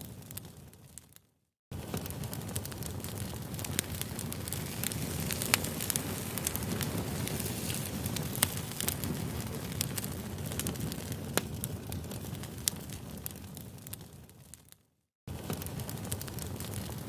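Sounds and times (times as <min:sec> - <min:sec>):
burning wood crackling and popping: 0:00.0 - 0:17.0
low rumble of flames: 0:01.7 - 0:17.0.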